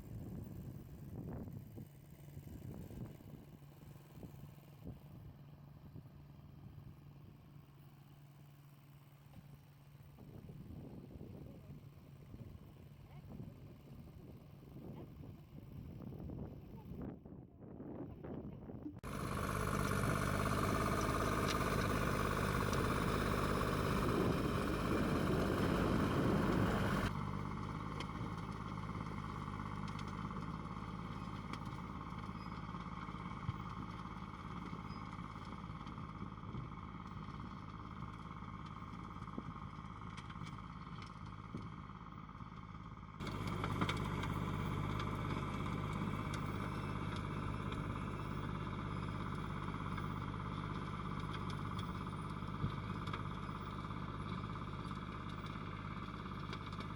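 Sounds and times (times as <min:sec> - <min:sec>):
tractor engine running: 0:00.0 - 0:16.9, 0:19.0 - 0:56.9.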